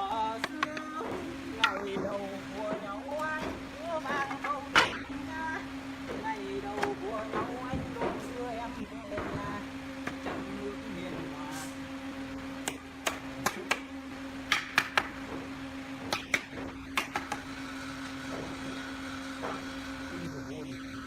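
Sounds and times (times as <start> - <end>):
steady mid-pitched hum: 0.0 - 21.0
sharp knocks and clicks: 16.0 - 17.4.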